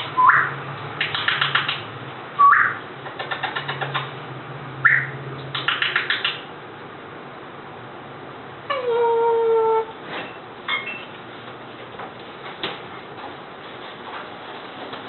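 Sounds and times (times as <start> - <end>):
parrot whistled chirps: 0.1 - 0.6, 2.4 - 2.8, 4.8 - 5.2
parrot sharp clicks: 1.0 - 1.9, 2.5 - 4.1, 4.9 - 6.4.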